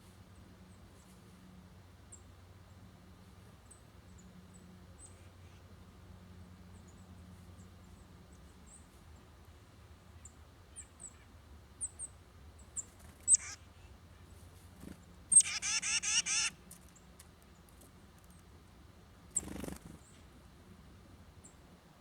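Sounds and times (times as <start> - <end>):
harsh bird scolding notes: 13.3 - 13.6, 15.4 - 16.6
high bird chip notes: 13.3 - 13.6, 15.4 - 16.6.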